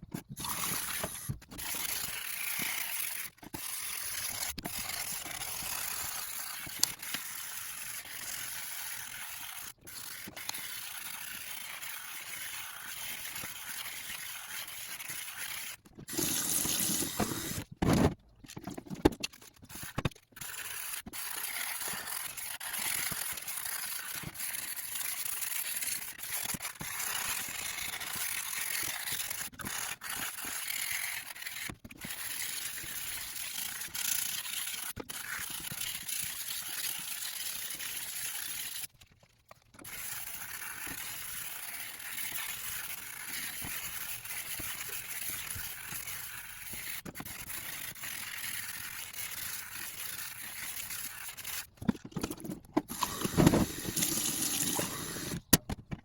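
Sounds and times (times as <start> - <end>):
brush scrubbing metal with water: 0.4 - 17.6, 39.8 - 51.8.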